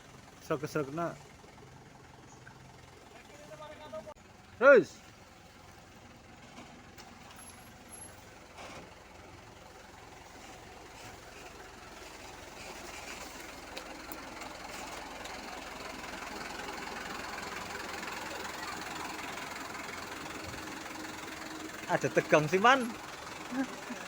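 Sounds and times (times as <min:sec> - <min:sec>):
trailer truck engine and rolling: 0:00.0 - 0:24.0.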